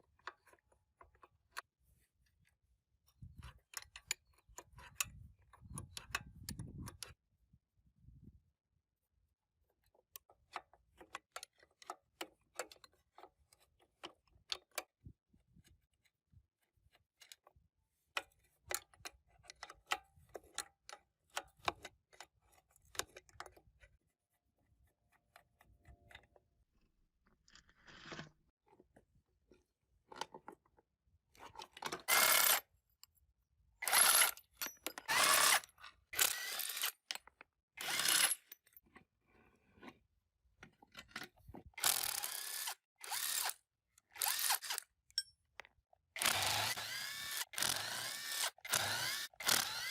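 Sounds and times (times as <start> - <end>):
power tool bursts: 46.2 - 49.9.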